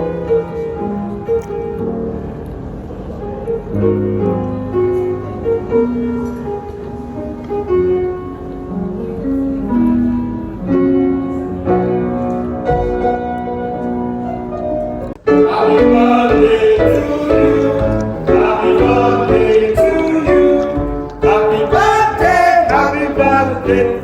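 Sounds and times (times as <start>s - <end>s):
slow piano melody: 0.0s - 24.0s.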